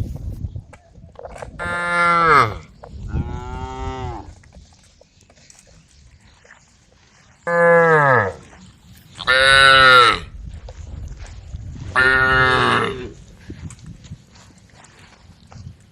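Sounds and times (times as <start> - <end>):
cows mooing: 1.6 - 4.4, 7.4 - 8.5, 9.2 - 10.3, 12.0 - 13.2.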